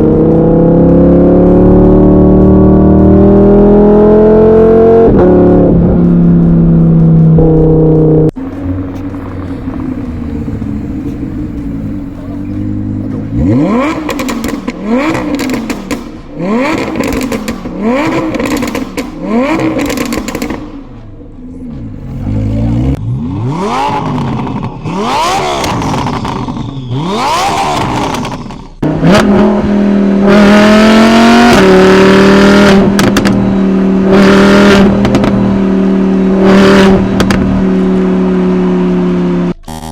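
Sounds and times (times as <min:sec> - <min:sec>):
car engine revving: 0:00.0 - 0:39.9
car engine idling: 0:06.0 - 0:23.2
exhaust pops: 0:08.4 - 0:21.1, 0:32.7 - 0:33.5, 0:34.7 - 0:35.6, 0:36.8 - 0:37.6
engine revving in quick blips: 0:10.6 - 0:20.7.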